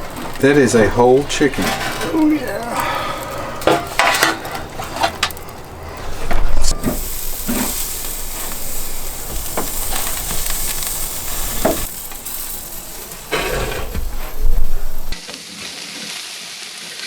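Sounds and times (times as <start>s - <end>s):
knocks and scrapes: 0.0s - 2.5s, 3.4s - 8.6s, 13.1s - 15.2s
food sizzling on a grill: 0.0s - 17.0s.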